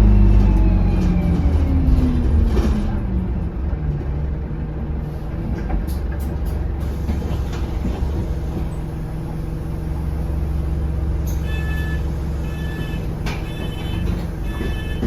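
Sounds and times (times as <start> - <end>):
bus engine drone: 0.0 - 15.0
high beep: 11.4 - 15.0.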